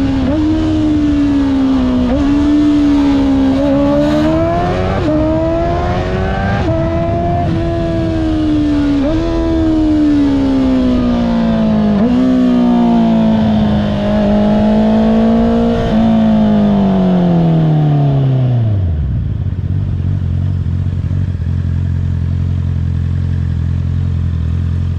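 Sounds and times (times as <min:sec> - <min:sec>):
motorcycle engine idling: 0:19.2 - 0:24.9.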